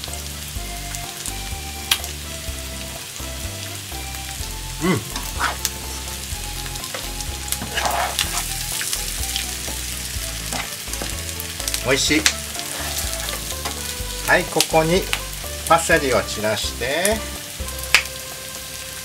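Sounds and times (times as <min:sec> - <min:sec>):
light background music: 0:00.0 - 0:19.0
potatoes sizzling in a pan: 0:00.0 - 0:19.0
spatula scraping a pan: 0:06.8 - 0:09.0, 0:10.4 - 0:11.2, 0:12.4 - 0:14.0.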